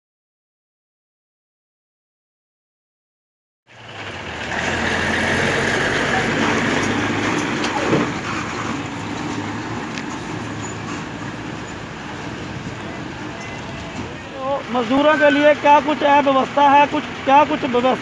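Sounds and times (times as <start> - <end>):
vehicle engine humming: 3.7 - 18.0.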